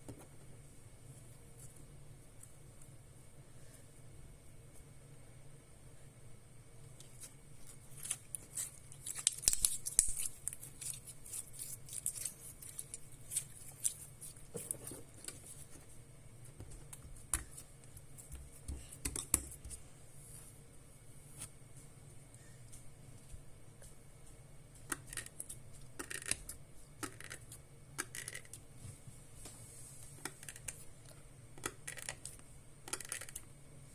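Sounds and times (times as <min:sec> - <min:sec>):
sticky slime clicks and crackles: 0:08.0 - 0:14.0.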